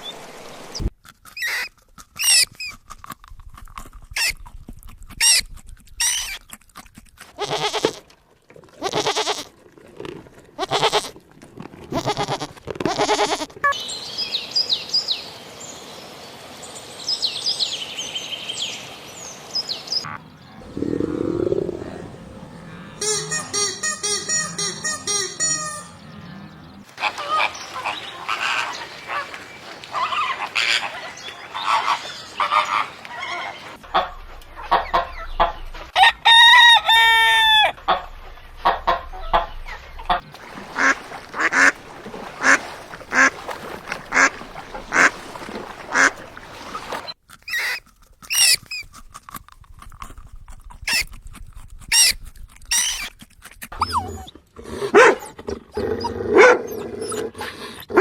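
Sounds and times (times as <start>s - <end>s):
rooster crowing: 36.0s - 37.7s
poultry clucking: 36.3s - 47.1s.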